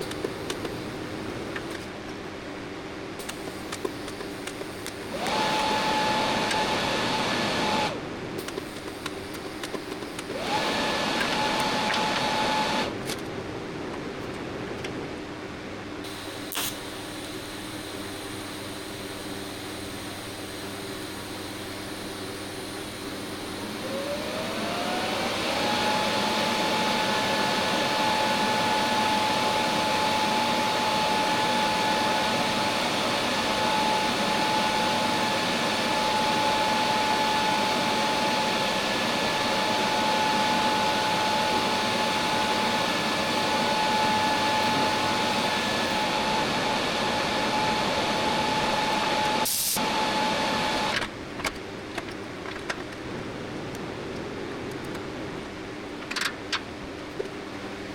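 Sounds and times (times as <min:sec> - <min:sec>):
power tool motor whining: 0:05.0 - 0:07.9, 0:09.9 - 0:12.9, 0:16.1 - 0:50.9.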